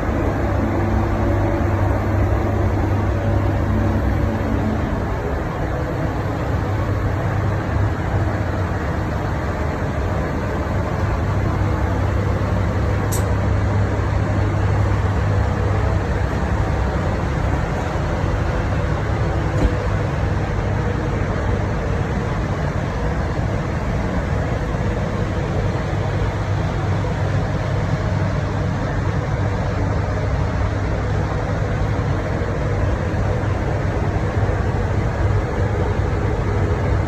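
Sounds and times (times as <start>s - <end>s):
machine humming: 0.0s - 13.4s.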